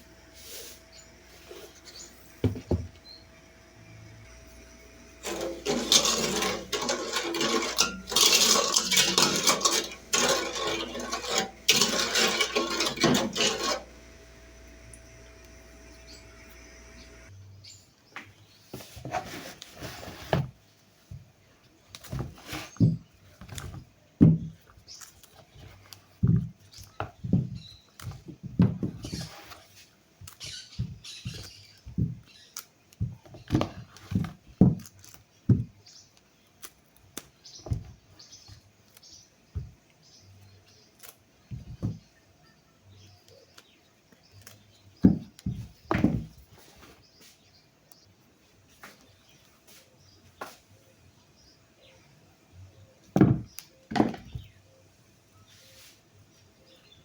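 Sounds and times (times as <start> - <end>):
kitchen utensils knocking and scraping: 5.2 - 14.0.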